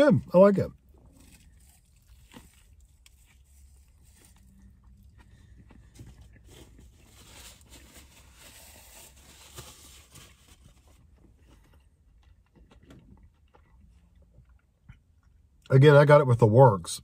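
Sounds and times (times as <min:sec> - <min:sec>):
low steady hum: 0:00.0 - 0:17.0
chewing food with wet clicks: 0:11.6 - 0:15.7.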